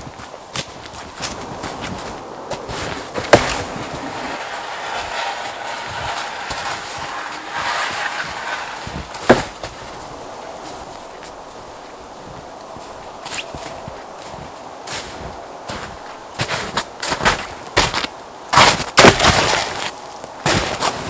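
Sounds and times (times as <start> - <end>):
rough scraping: 0.8 - 18.0
sharp wooden knocks: 6.0 - 9.8.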